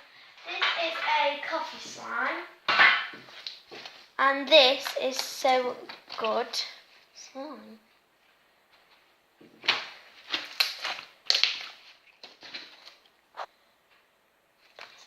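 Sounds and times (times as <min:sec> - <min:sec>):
slime squishing wetly: 0:09.6 - 0:13.2.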